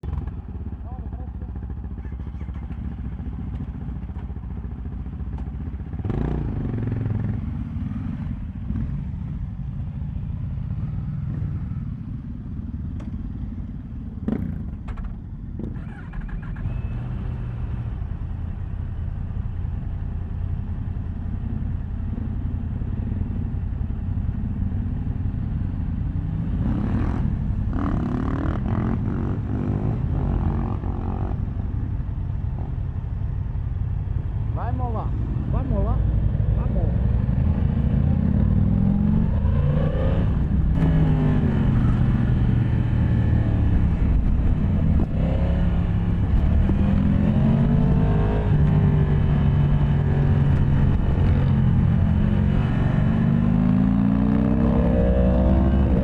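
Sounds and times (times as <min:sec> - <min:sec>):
motorcycle engine revving: 0:00.0 - 0:09.4, 0:15.6 - 0:18.0, 0:24.2 - 0:31.9, 0:34.4 - 0:56.0.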